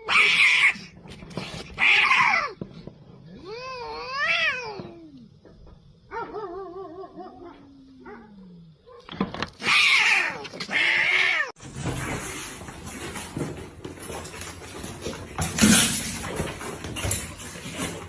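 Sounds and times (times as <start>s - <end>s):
cat yowling: 0.0s - 0.9s, 1.8s - 2.6s, 3.4s - 5.3s, 9.6s - 11.6s
cat hissing: 0.0s - 2.6s.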